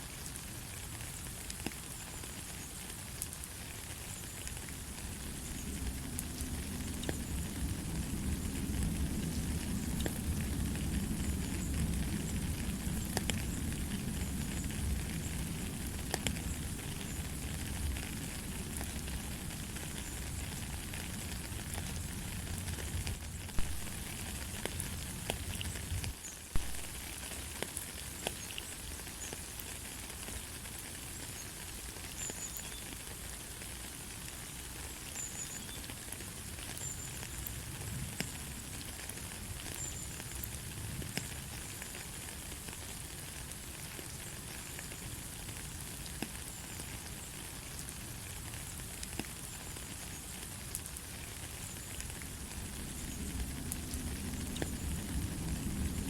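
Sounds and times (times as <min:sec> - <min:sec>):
light rain hissing: 0:00.0 - 0:56.0
raindrop taps: 0:11.6 - 0:13.8, 0:16.0 - 0:17.0, 0:23.0 - 0:25.4, 0:26.0 - 0:27.0.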